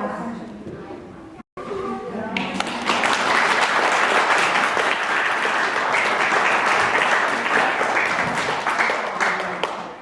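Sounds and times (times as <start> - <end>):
audience clapping: 2.3 - 10.0.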